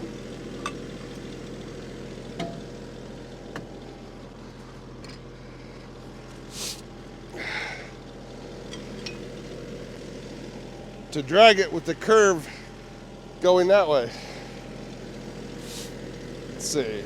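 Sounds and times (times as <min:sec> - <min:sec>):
tractor diesel engine idling: 0:00.0 - 0:17.0
short hiss: 0:06.5 - 0:06.8, 0:15.6 - 0:16.0.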